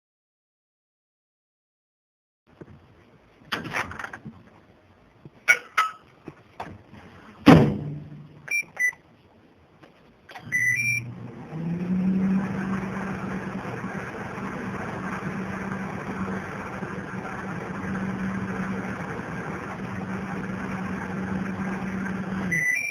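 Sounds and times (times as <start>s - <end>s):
loud thump: 7.4s - 8.3s
keypad beeps: 8.5s - 9.0s, 10.3s - 11.1s, 22.5s - 22.9s
microwave oven humming: 10.3s - 22.9s.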